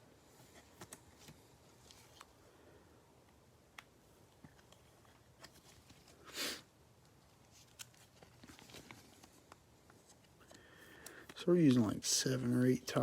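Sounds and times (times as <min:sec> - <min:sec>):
loud sniff: 0:06.2 - 0:06.7
trading cards being handled: 0:07.0 - 0:13.0.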